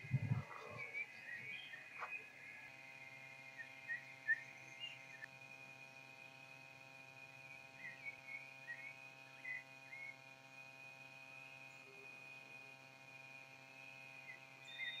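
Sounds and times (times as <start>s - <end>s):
steady high-pitched whine: 0.0s - 15.0s
short bird chirps: 14.3s - 15.0s.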